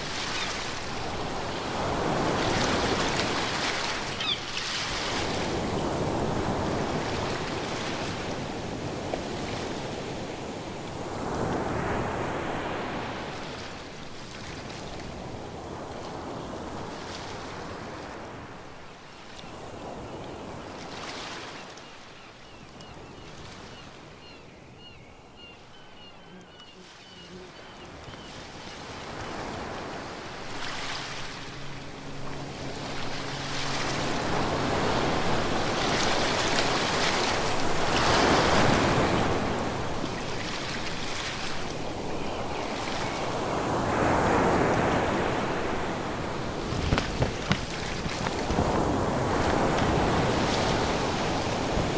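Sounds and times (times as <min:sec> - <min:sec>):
ocean surf breaking: 0:26.8 - 0:51.9.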